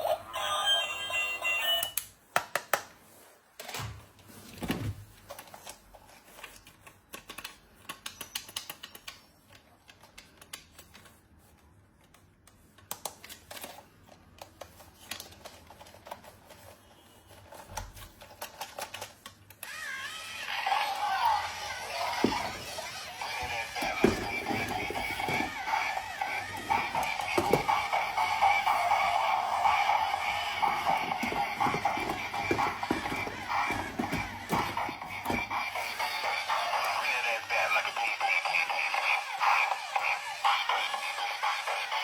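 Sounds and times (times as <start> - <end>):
plastic toy pieces clicking: 18.3 - 19.6.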